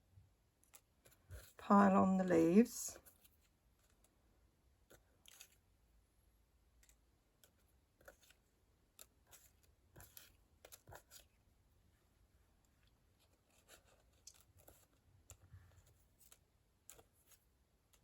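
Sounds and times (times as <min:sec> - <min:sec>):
light clicks and rustles of cardstock: 0:03.0 - 0:04.2, 0:04.8 - 0:05.7, 0:06.8 - 0:11.5, 0:12.6 - 0:18.0.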